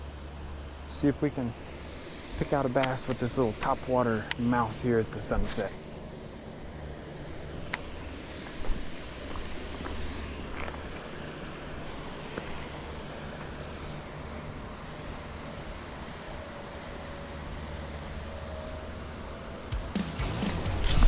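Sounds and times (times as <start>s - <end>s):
insect chirping: 0.0s - 19.8s.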